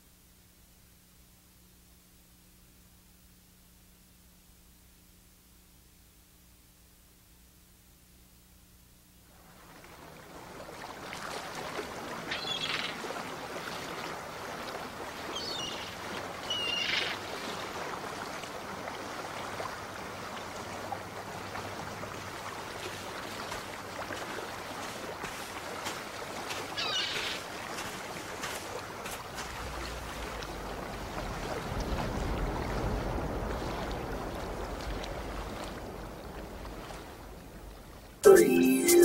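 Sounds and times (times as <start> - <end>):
sea waves washing: 9.3 - 39.0
short high calls: 26.8 - 27.4.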